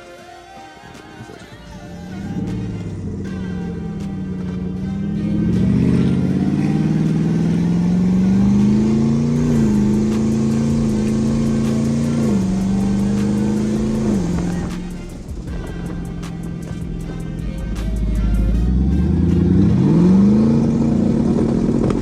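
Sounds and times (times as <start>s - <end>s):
car engine accelerating: 1.4s - 22.0s.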